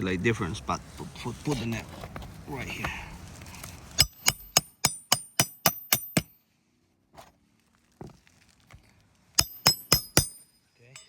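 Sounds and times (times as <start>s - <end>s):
hammer striking nail: 4.0s - 6.4s, 9.4s - 11.0s.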